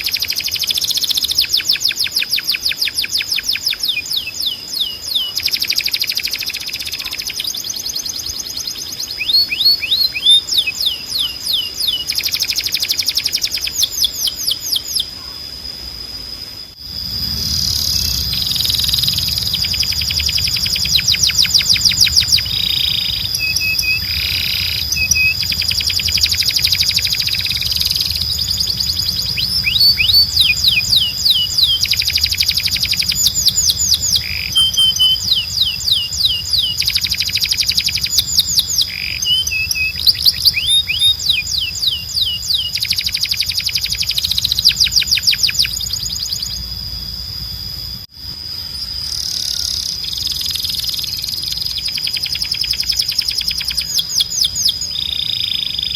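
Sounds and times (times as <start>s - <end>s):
canary singing trills: 0.0s - 15.7s, 16.8s - 48.0s, 48.6s - 55.9s
low hum: 15.2s - 55.1s
steady high tone: 16.1s - 52.9s.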